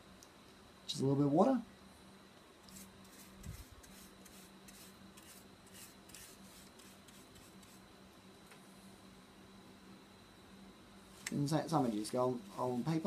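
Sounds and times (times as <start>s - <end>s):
paintbrush scrubbing plastic: 2.7s - 7.8s.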